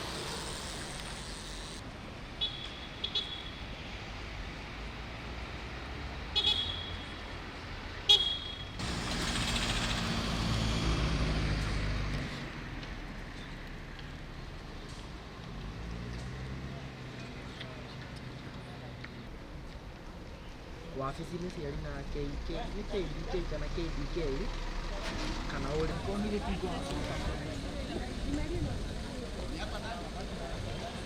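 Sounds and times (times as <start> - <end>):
motor vehicle passing close: 8.8 - 12.6.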